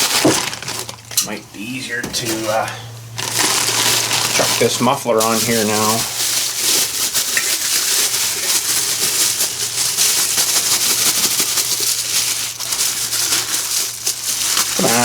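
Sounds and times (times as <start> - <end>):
steady low hum: 0.0 - 7.0
rustling handling noise: 0.0 - 15.0.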